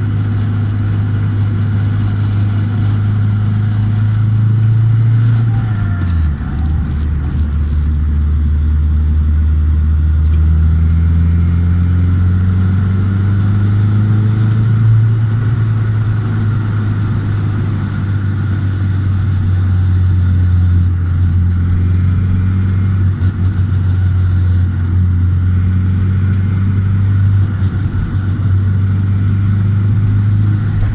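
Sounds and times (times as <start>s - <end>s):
car engine droning: 0.0s - 30.9s
high whine: 0.6s - 10.4s.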